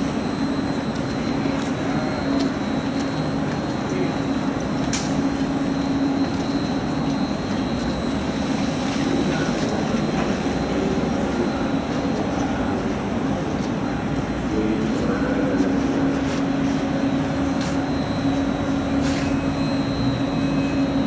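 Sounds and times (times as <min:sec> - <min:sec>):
electric trains humming: 0:00.0 - 0:21.0.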